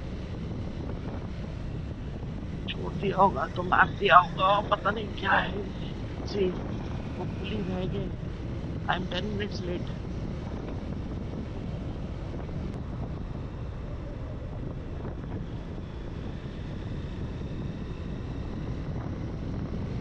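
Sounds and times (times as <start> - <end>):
wind rushing on microphone: 0.0 - 20.0.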